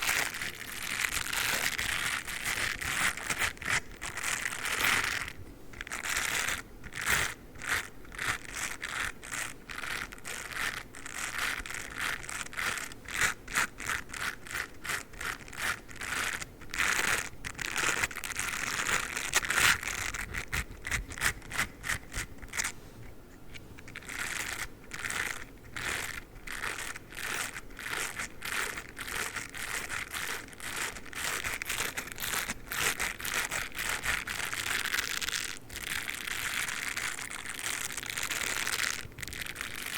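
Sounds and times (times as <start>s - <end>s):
toothbrush scratchy brushing strokes: 0.0s - 22.8s, 23.8s - 39.9s.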